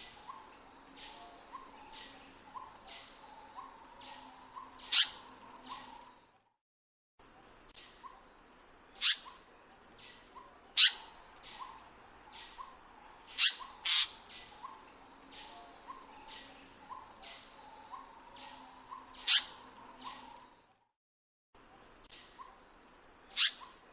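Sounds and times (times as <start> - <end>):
loud sharp high bird calls: 0.0 - 5.9, 8.9 - 10.2, 10.8 - 20.3, 23.3 - 23.9.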